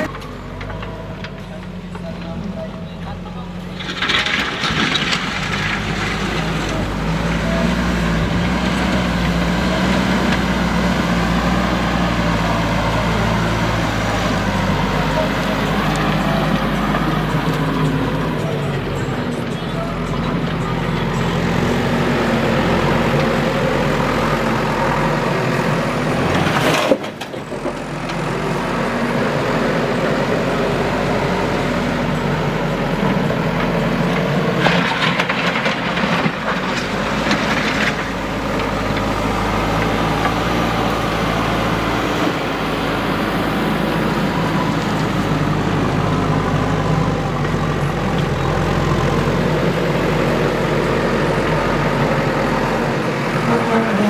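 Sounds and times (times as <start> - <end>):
diesel machinery running: 0.0 - 54.0.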